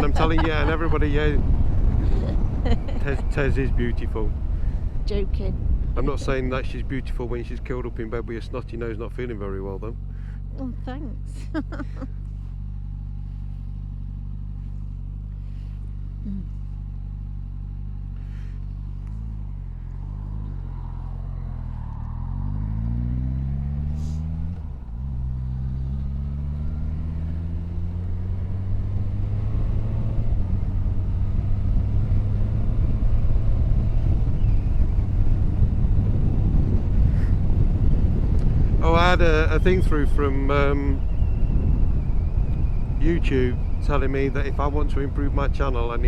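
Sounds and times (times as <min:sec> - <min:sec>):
wind noise: 0:00.0 - 0:08.6, 0:28.5 - 0:46.0
motorcycle engine accelerating: 0:00.0 - 0:46.0.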